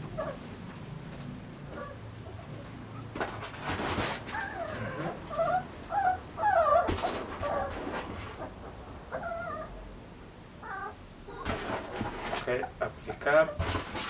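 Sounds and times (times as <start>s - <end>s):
puppies whimpering: 0.0s - 0.9s, 4.2s - 9.8s, 10.6s - 11.6s.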